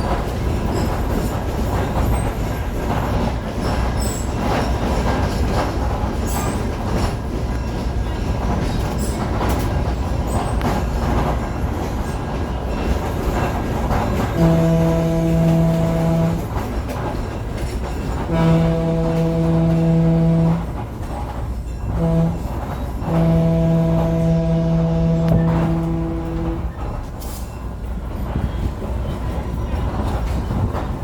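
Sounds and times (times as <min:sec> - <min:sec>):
train rumbling along track: 0:00.0 - 0:31.0
train horn blasts: 0:14.1 - 0:16.9, 0:18.0 - 0:21.3, 0:21.9 - 0:27.1.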